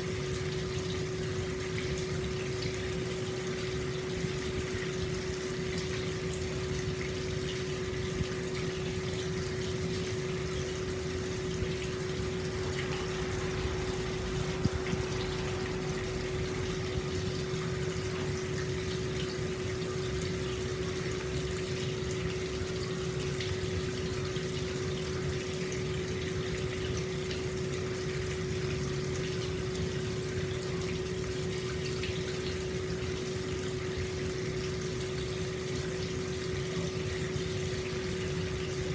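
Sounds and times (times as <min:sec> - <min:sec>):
water pouring into a bath: 0:00.0 - 0:38.9
low hum: 0:11.2 - 0:19.1.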